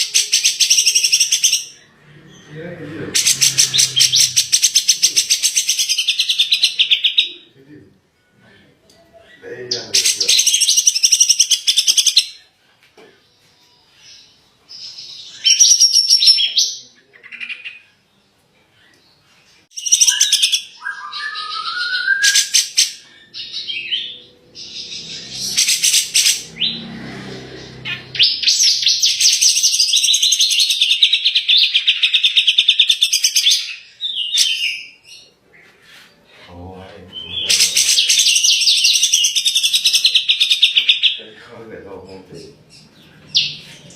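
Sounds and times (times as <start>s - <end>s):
songbird singing: 0.0s - 7.6s, 8.2s - 43.9s.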